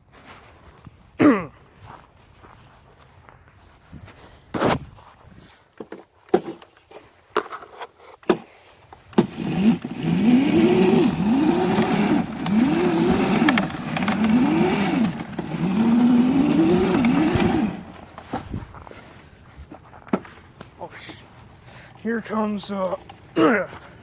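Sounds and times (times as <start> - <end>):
dirt bike engine revving: 9.1 - 18.6.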